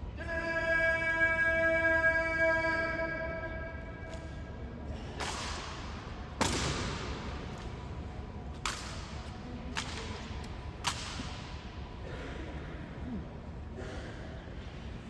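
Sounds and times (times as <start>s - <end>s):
rifles slapped and clacked by hand: 5.2s - 7.8s, 8.5s - 11.6s.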